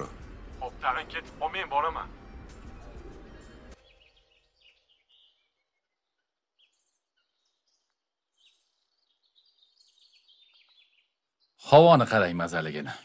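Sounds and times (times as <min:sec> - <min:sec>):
faint bird chirps: 0:02.3 - 0:11.8.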